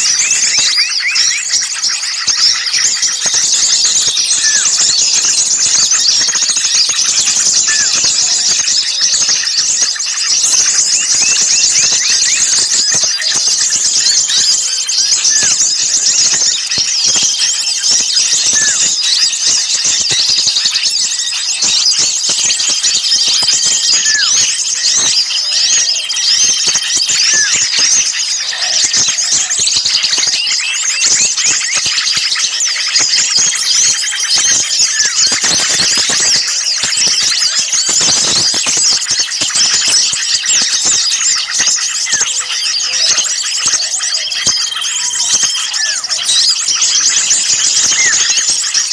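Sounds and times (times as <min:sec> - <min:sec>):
bird whistles: 0:00.0 - 0:48.9
songbirds scolding calls: 0:00.0 - 0:48.9.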